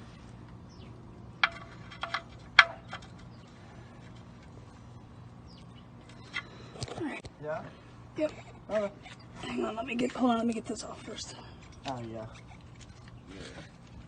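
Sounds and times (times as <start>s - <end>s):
faint steady hum: 0.0s - 14.0s
sharp clicks and knocks: 1.4s - 3.4s.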